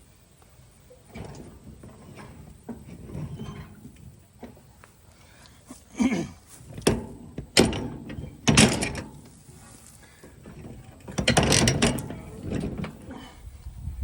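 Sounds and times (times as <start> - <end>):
chain clanking on sprocket: 10.4 - 13.0.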